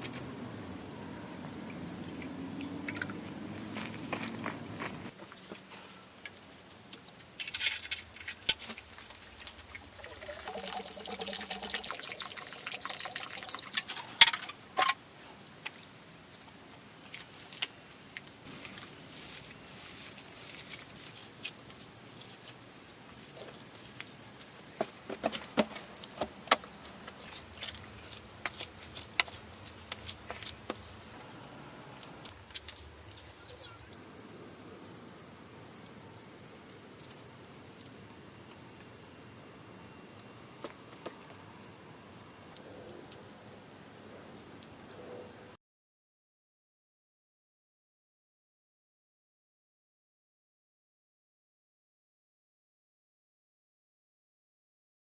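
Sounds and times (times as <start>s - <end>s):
high-pitched insect call: 5.1s - 20.9s, 25.2s - 45.5s.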